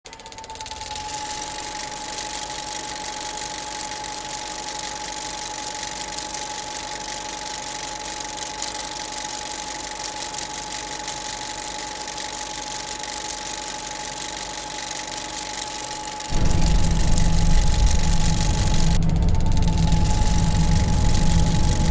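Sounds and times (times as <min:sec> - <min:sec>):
steady whine: 0:10.4 - 0:21.9
music with heavy bass: 0:16.3 - 0:21.9.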